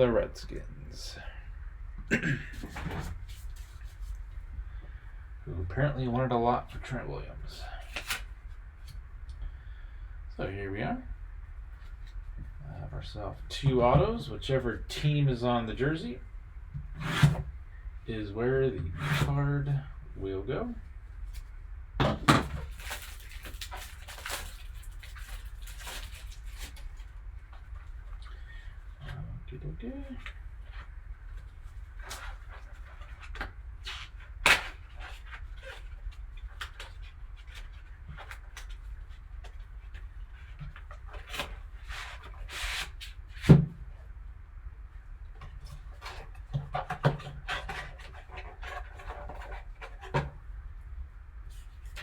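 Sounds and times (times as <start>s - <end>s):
cards and packaging rustling: 2.5s - 4.3s, 7.5s - 9.0s, 22.3s - 28.4s.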